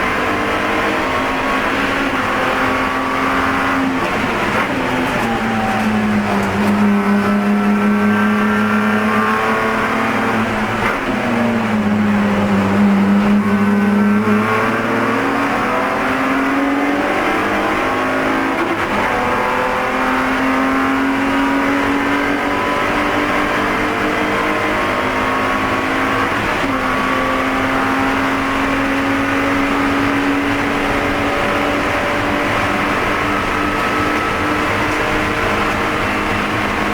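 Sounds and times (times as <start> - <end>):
race car engine at speed: 0.0 - 36.9.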